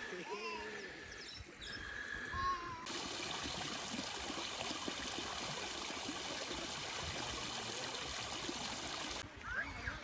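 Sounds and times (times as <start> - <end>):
running water: 2.9 - 10.0.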